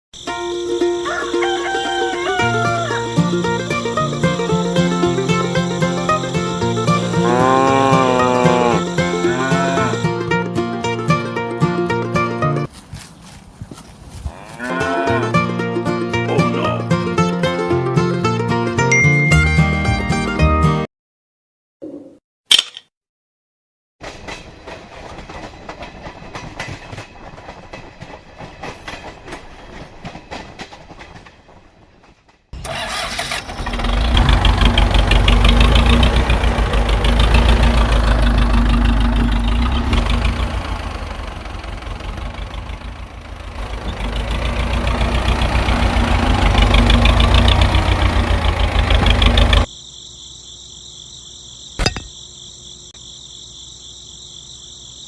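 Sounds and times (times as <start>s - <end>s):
insect chirring: 0.2s - 10.1s, 49.6s - 55.0s
engine running loudly: 3.4s - 10.0s, 33.4s - 49.7s
sharp click: 22.5s - 22.9s.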